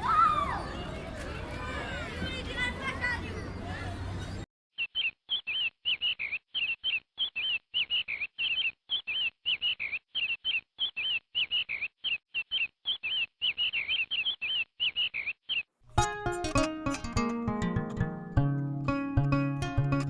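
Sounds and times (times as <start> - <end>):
small bird chirping: 4.8 - 15.7.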